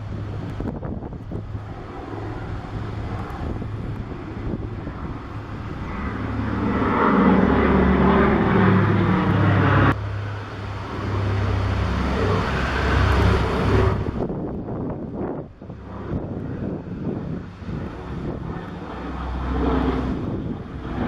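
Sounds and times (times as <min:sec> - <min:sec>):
propeller plane engines droning: 0:00.0 - 0:21.0.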